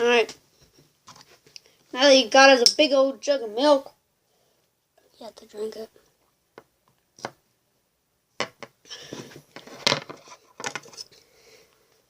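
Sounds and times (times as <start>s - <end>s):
hard objects knocking and clattering: 8.4s - 11.0s.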